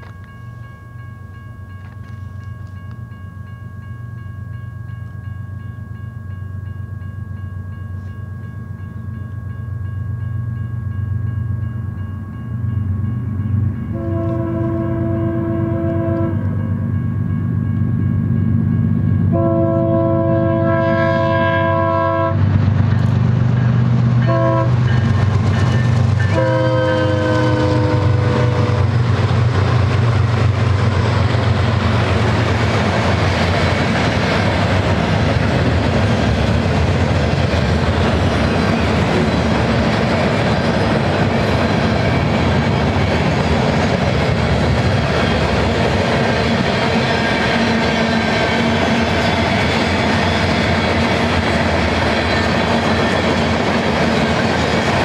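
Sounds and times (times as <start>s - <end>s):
diesel locomotive engines passing: 0.0s - 55.0s
train air horn blasts: 13.9s - 16.6s, 19.3s - 22.4s, 24.2s - 24.8s, 26.3s - 29.0s
wheels clattering on rail: 22.4s - 55.0s.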